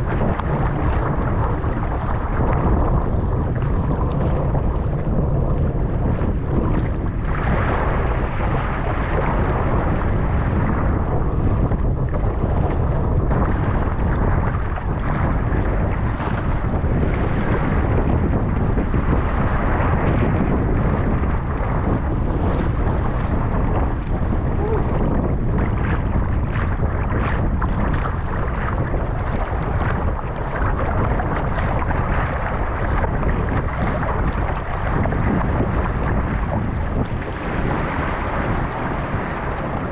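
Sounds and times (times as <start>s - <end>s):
choppy water and waves: 0.0s - 39.9s
wind buffeting microphone: 0.0s - 39.9s.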